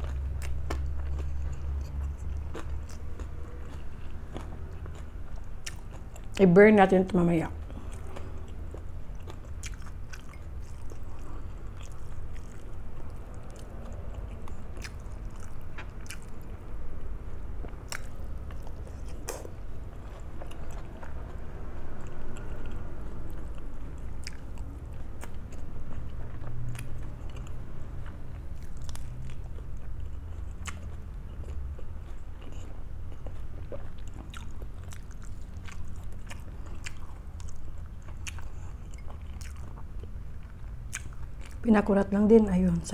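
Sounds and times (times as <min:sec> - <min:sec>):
crisp chewing crunches: 0:24.2 - 0:41.7.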